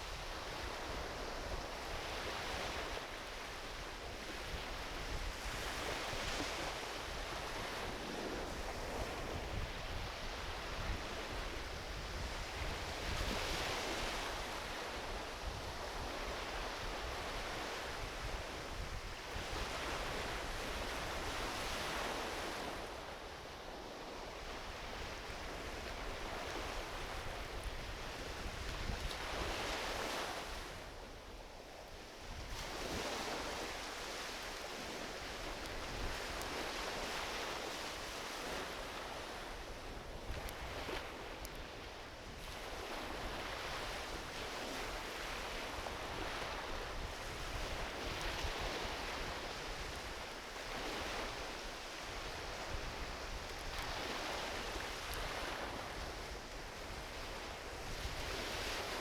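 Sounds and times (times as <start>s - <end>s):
small waves washing onto beach: 0.0s - 59.0s
wind rumble on microphone: 0.0s - 59.0s
campfire crackles: 41.4s - 41.6s.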